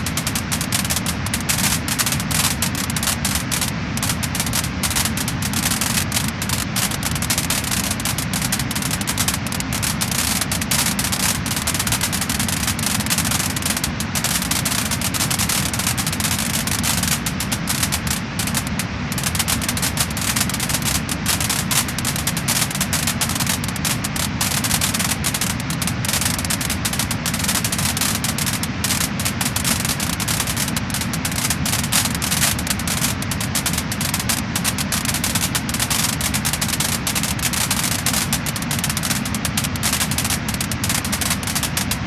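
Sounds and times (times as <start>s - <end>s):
steady hiss: 0.0s - 42.0s
wood fire crackling and popping: 0.0s - 42.0s.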